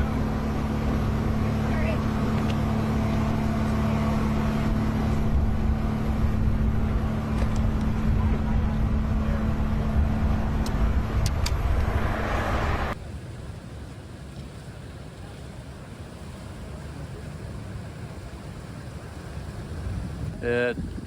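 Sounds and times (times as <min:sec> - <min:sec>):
engine droning: 0:00.0 - 0:13.2.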